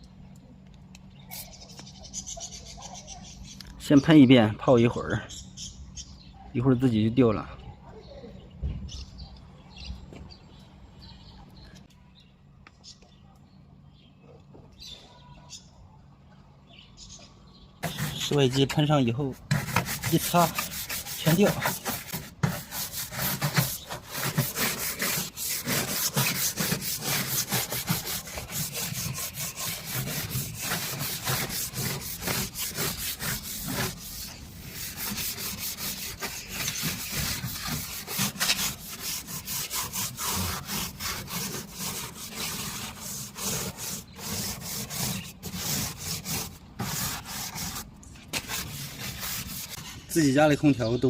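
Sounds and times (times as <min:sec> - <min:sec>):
scrubbing metal casing: 0:17.8 - 0:49.9.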